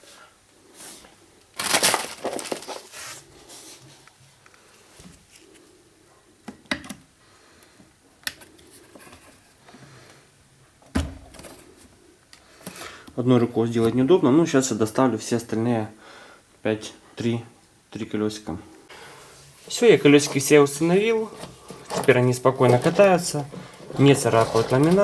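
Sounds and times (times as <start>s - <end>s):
crunching plastic scrape: 1.6s - 3.8s, 19.1s - 25.0s.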